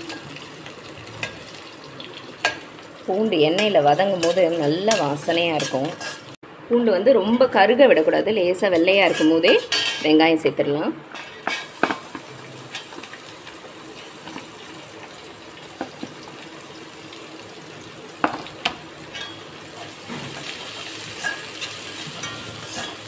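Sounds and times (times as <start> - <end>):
onion sizzling in oil: 0.0 - 6.4, 11.4 - 23.0
metal spoon clinking on pan: 19.1 - 19.5, 21.2 - 23.0.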